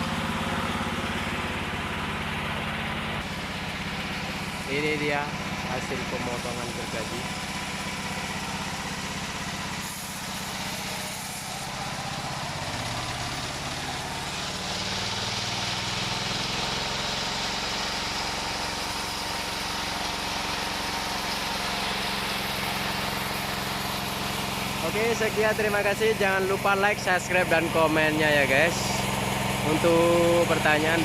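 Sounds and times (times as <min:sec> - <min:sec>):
engine-driven wood saw running: 0:00.0 - 0:31.0.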